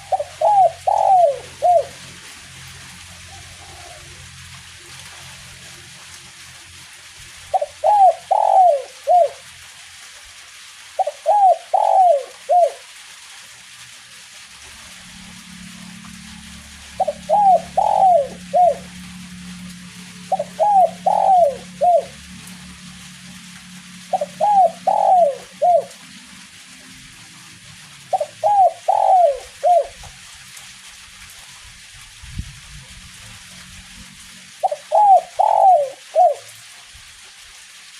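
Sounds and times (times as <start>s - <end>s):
dove cooing: 0.0s - 2.3s, 3.0s - 4.4s, 7.5s - 9.5s, 11.0s - 12.9s, 15.4s - 22.6s, 23.2s - 26.2s, 28.1s - 30.0s, 34.6s - 36.5s
light drizzle hiss: 0.0s - 37.9s.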